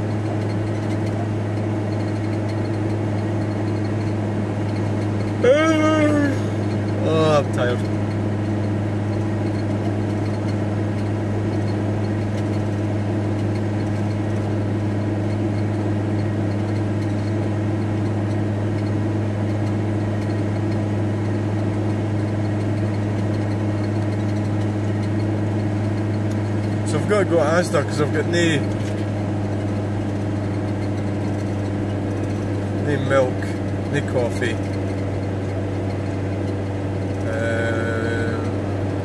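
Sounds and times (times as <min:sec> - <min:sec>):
van engine humming: 0:00.0 - 0:39.0.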